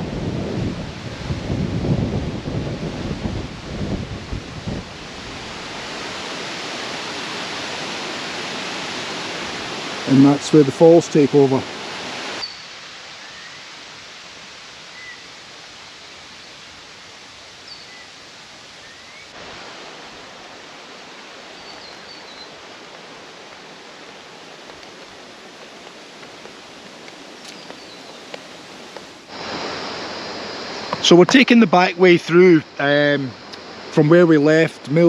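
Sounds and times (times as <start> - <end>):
waterfall rushing: 0.0 - 35.0
bird chirps: 12.4 - 13.6, 17.7 - 18.1, 21.5 - 22.6, 27.5 - 28.3.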